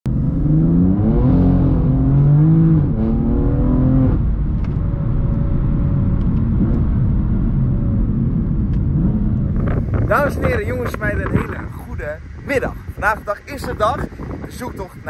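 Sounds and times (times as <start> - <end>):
car engine accelerating through gears: 0.1 - 10.2.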